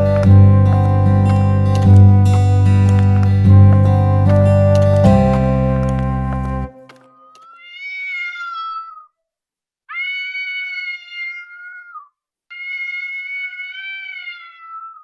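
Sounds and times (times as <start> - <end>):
strummed acoustic guitar music: 0.0 - 7.0
cat meowing: 7.1 - 9.2, 9.9 - 15.0.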